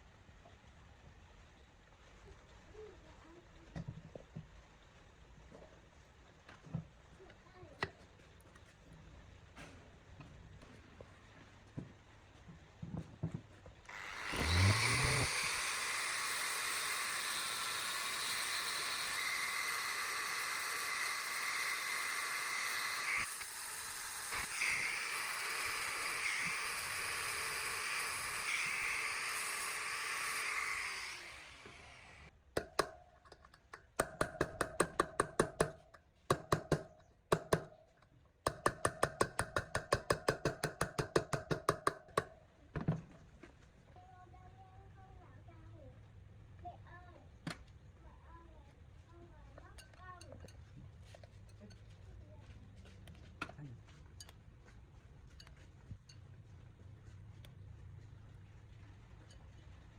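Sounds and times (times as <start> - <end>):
power tool whining: 13.9 - 32.3
scraping strokes on metal: 13.9 - 32.3.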